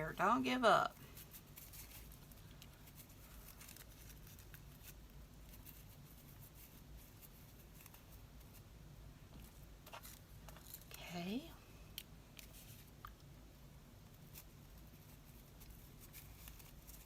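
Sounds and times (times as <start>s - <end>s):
paper rustling: 1.0s - 8.6s, 14.2s - 17.0s.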